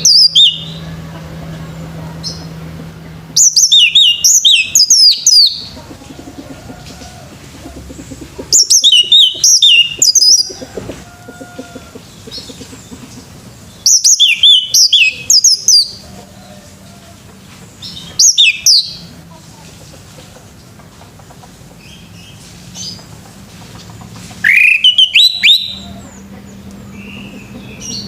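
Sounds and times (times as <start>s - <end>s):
thrush singing whistled phrases: 0.0s - 0.8s, 3.4s - 5.7s, 8.6s - 10.6s, 13.8s - 16.0s, 18.1s - 19.0s, 24.4s - 25.9s.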